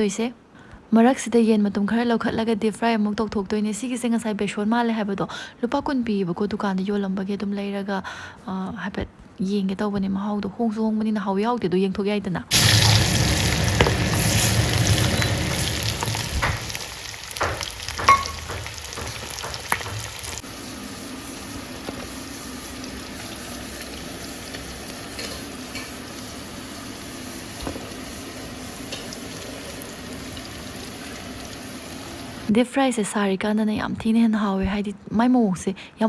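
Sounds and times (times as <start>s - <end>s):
chicken deep-frying in oil: 12.5s - 32.5s.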